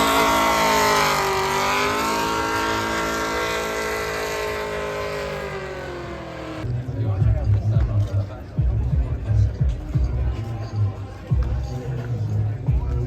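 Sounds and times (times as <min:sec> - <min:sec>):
vehicle engine falling in pitch: 0:00.0 - 0:06.7.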